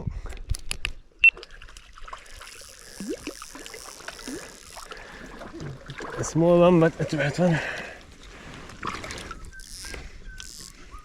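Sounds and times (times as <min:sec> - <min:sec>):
river water splashing and trickling: 0:01.3 - 0:10.8.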